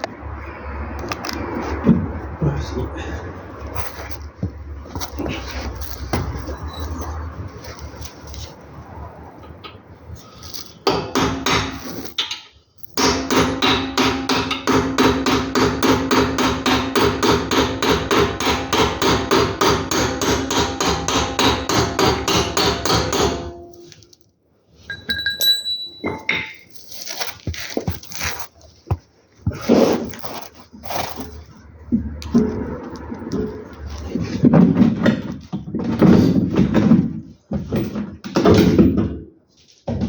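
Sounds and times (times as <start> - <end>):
ringing metal hammer blows: 24.9 - 26.6.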